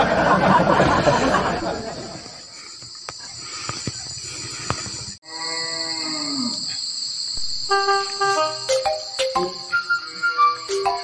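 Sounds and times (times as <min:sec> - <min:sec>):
high-pitched insect drone: 0:02.4 - 0:11.0.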